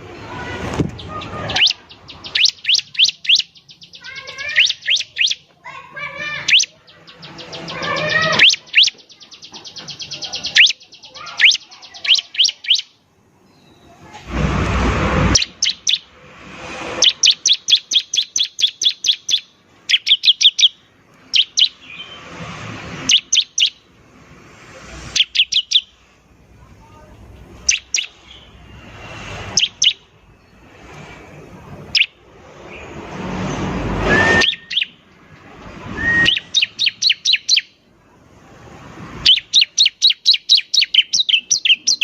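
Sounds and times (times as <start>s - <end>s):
bird chirps and trills: 0.1s - 14.0s, 15.2s - 26.1s, 27.2s - 37.9s, 39.0s - 42.0s
harsh buzzy bird call: 0.3s - 13.0s, 15.2s - 23.9s, 25.1s - 26.0s, 27.6s - 30.2s, 31.8s - 32.2s, 33.9s - 35.0s, 35.8s - 37.8s, 39.2s - 42.0s.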